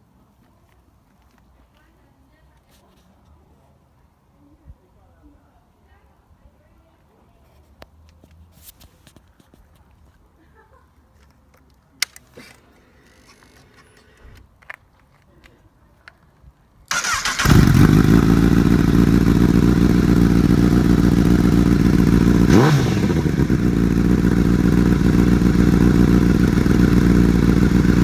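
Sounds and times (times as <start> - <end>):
engine starter cranking: 16.9 - 18.4
motorcycle engine idling: 16.9 - 28.0
motorcycle engine revving: 16.9 - 28.0.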